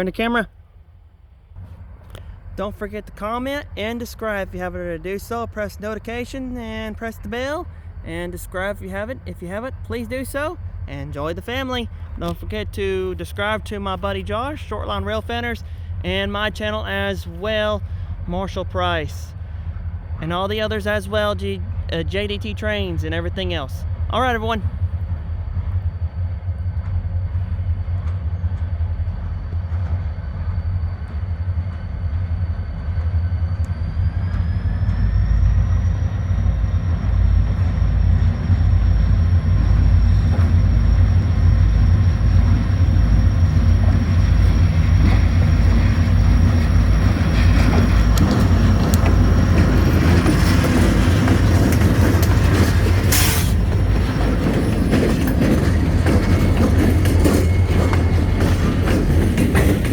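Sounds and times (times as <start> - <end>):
diesel locomotives rumbling: 0.0 - 59.9
train rolling noise: 0.0 - 59.9
high whine rising in pitch: 24.8 - 50.0.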